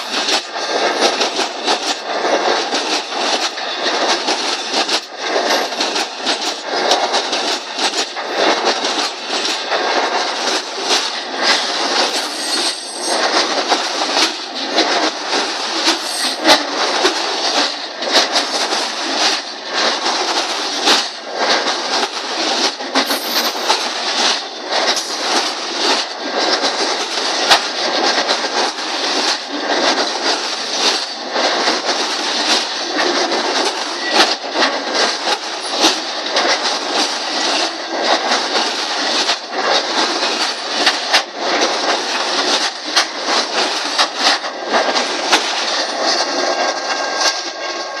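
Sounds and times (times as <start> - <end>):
steel wheels rushing on rail: 0.0 - 48.0
wheels clicking over rail joints: 0.0 - 48.0
thin steady whine: 5.0 - 27.6.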